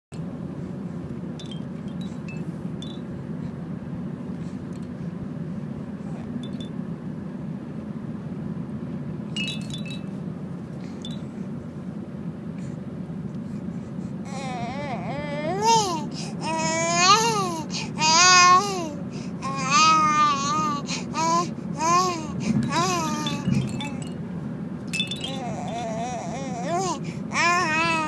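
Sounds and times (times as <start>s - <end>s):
steady low hum: 0.1s - 28.0s
light chime-like tinkles: 1.4s - 3.2s, 6.4s - 6.8s, 9.4s - 10.2s, 23.2s - 24.3s, 24.9s - 25.5s.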